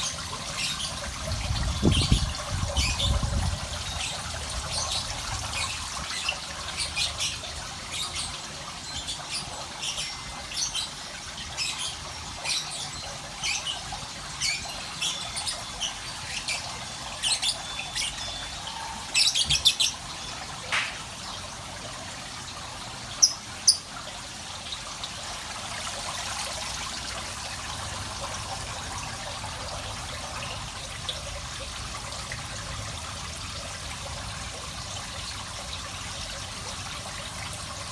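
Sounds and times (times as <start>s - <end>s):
small birds chirping: 0.0s - 21.1s, 23.2s - 23.9s
trickle of running water: 0.0s - 37.9s.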